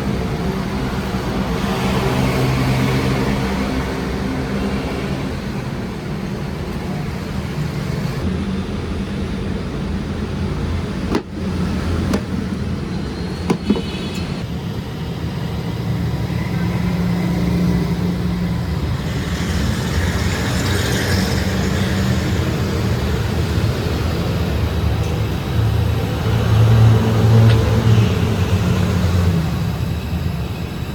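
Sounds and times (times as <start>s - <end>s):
machinery humming: 0.0s - 30.9s
sharp knocks: 11.1s - 11.4s, 13.5s - 14.1s.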